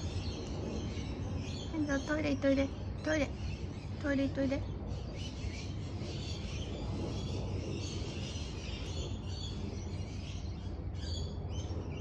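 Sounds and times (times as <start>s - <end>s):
low outdoor rumble: 0.0s - 12.0s
small birds chirping: 0.0s - 12.0s.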